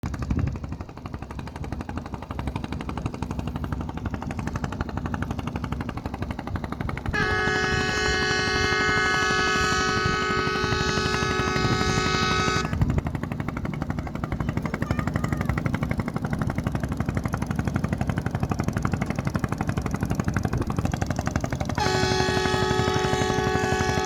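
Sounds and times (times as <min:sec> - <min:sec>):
ferry engine throbbing: 0:00.0 - 0:24.0
ship horn: 0:07.1 - 0:13.0, 0:21.7 - 0:24.0.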